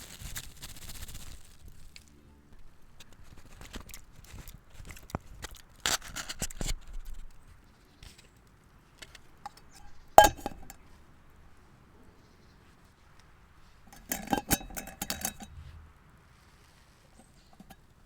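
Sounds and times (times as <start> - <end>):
dish clinking with short ring: 10.2 - 10.7
rustling handling sounds: 12.6 - 18.0.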